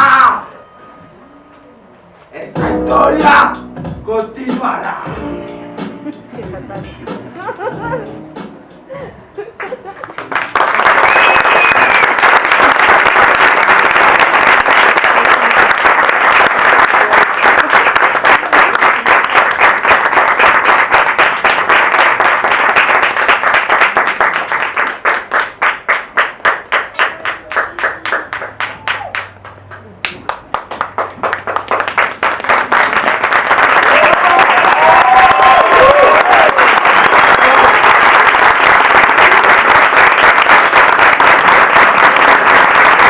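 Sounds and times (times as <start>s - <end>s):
audience applauding: 9.6s - 43.0s
rhythmic clapping in unison: 9.6s - 43.0s.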